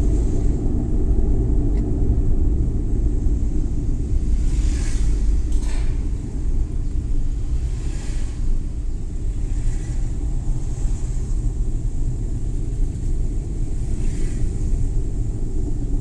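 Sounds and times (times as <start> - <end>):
car engine rumble: 0.0 - 16.0
road noise: 0.0 - 16.0.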